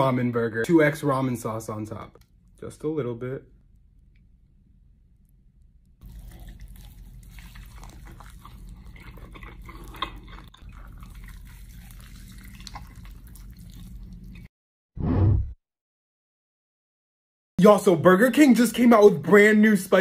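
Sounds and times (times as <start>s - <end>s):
low hum: 2.1s - 7.2s
crunchy chewing: 6.0s - 14.5s.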